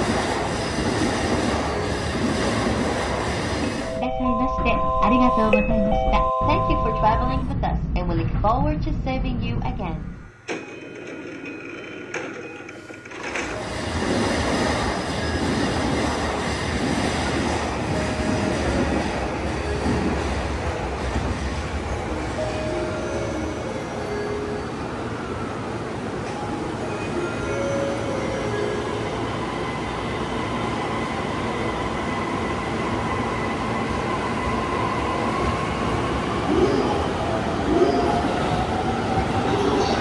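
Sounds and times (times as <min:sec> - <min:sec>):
train wheels rumbling on rails: 0:00.0 - 0:03.9, 0:10.5 - 0:23.7
electric trains rumbling and humming: 0:00.0 - 0:40.0.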